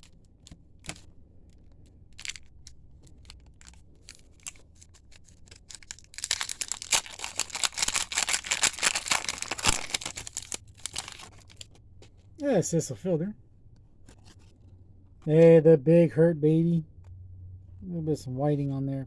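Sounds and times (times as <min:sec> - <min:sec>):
card pack wrapper crinkling and tearing: 0:00.0 - 0:11.8
trading cards clicking: 0:05.5 - 0:11.6.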